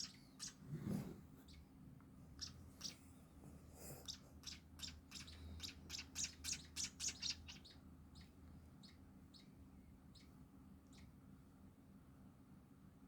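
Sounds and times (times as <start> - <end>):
nestlings begging chirps: 0.0 - 0.6, 2.4 - 3.0, 4.0 - 11.1.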